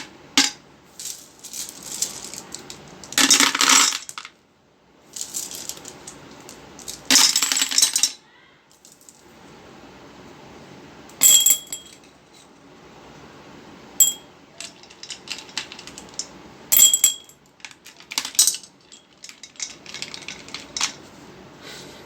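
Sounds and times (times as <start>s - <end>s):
stones clinking on ceramic pot: 11.2s - 12.0s, 14.0s - 16.0s, 16.7s - 17.4s.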